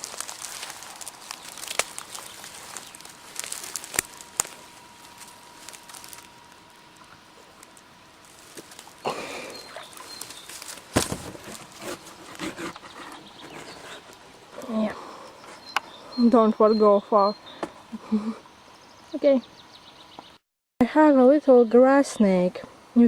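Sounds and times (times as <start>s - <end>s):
rustling through vegetation: 0.0s - 14.9s.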